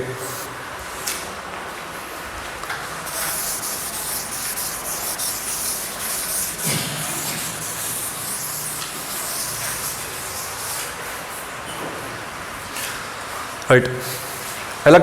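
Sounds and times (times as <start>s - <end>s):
scratchy writing strokes: 3.1s - 11.4s.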